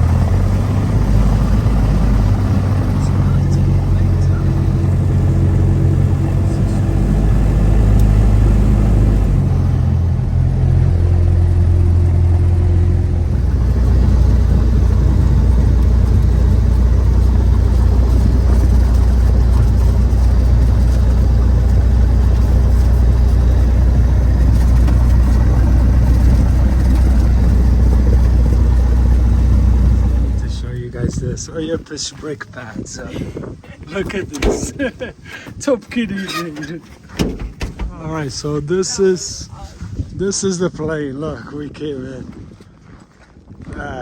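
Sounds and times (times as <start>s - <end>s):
light aircraft piston engine: 0.0s - 30.8s.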